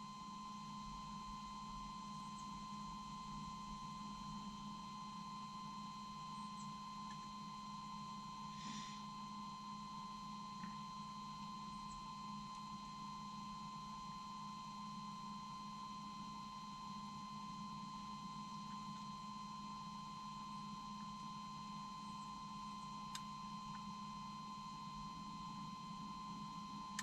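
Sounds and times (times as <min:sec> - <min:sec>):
click: 0:23.1 - 0:23.8.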